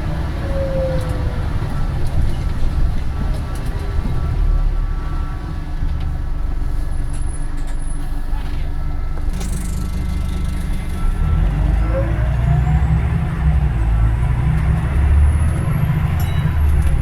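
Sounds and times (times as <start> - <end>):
bus engine running: 0.0 - 17.0.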